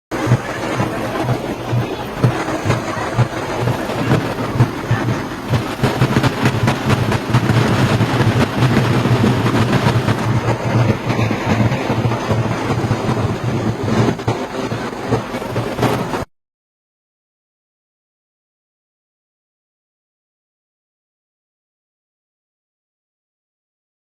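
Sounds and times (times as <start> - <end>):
rail clatter: 0.1 - 16.3
train rumble: 0.1 - 16.3.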